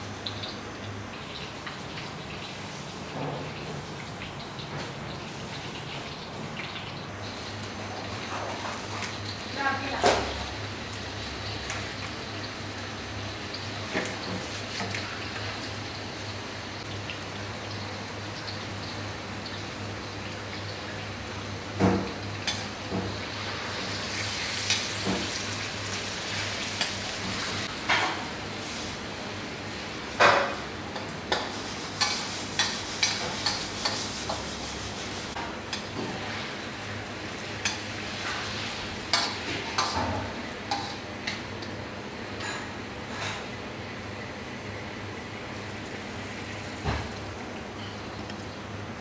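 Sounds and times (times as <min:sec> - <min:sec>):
meat sizzling in a wok: 0:00.0 - 0:43.2
metal spoon clinking and scraping pan: 0:32.0 - 0:34.4.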